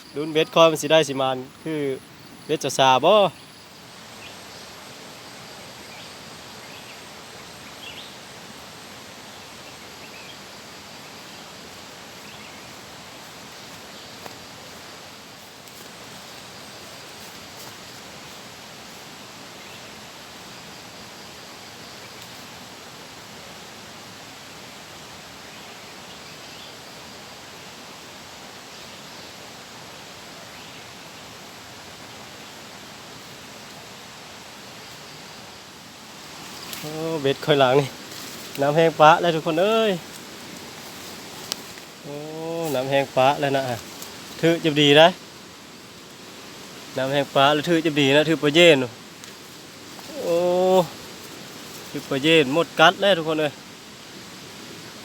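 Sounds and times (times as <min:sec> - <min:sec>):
flowing water rushing: 0:27.2 - 0:55.0.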